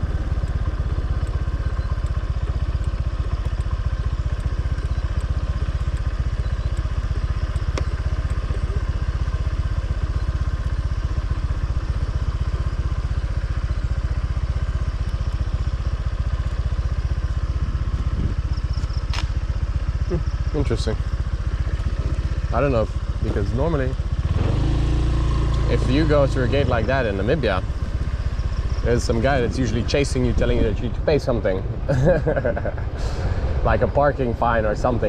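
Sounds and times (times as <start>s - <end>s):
motorcycle engine running: 0.0s - 35.0s
sharp click: 18.8s - 19.4s.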